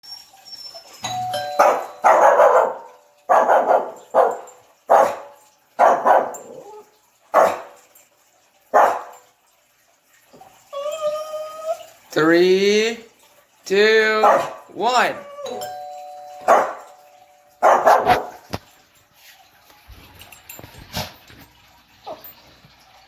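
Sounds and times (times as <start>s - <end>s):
doorbell chime: 1.0s - 2.5s, 15.4s - 17.6s
dog barking: 1.6s - 6.6s, 7.3s - 7.8s, 8.7s - 9.2s, 14.2s - 14.7s, 16.5s - 16.9s, 17.6s - 18.5s.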